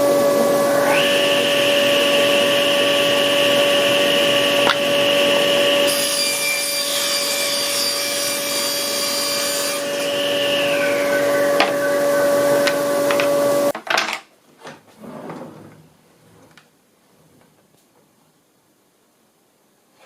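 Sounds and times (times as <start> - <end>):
saw cutting through timber: 0.0 - 13.7
power saw whining: 0.0 - 13.8.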